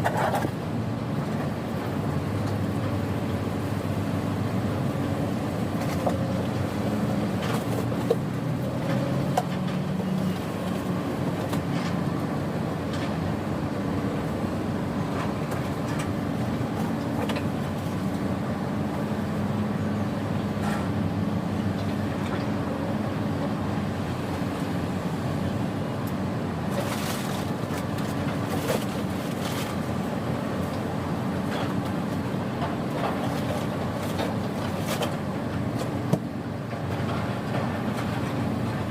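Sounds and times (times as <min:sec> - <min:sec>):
diesel engine humming: 0:00.0 - 0:38.9.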